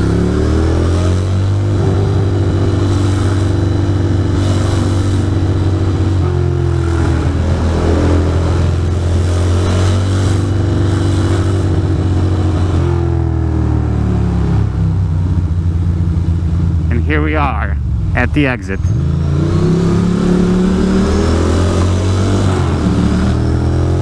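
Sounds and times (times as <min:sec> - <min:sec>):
motorcycle engine running: 0:00.0 - 0:12.7.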